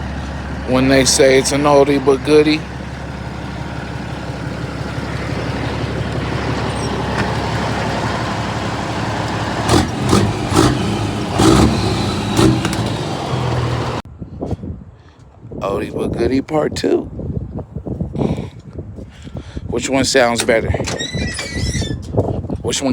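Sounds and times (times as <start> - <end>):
truck diesel engine idling: 0.0 - 14.0
engine revving blips: 2.6 - 14.0.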